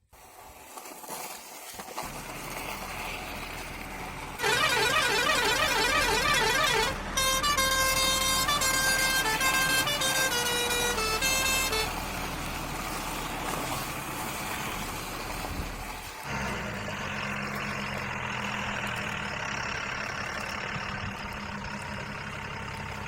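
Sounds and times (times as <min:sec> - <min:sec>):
low engine-like hum: 0:02.0 - 0:23.0
low rumbling noise: 0:02.1 - 0:23.0
warbling toy siren: 0:04.4 - 0:12.0.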